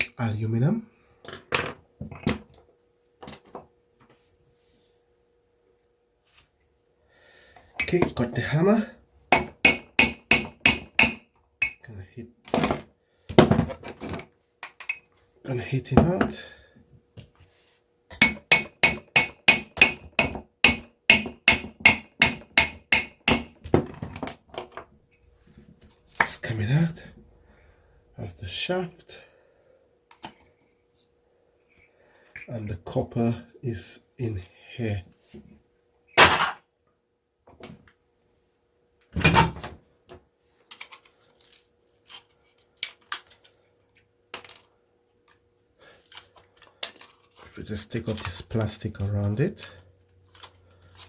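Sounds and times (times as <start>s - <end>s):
hammer striking metal: 9.3s - 11.8s, 18.1s - 23.5s
metal parts clanking on work surface: 12.5s - 12.9s, 39.2s - 39.7s.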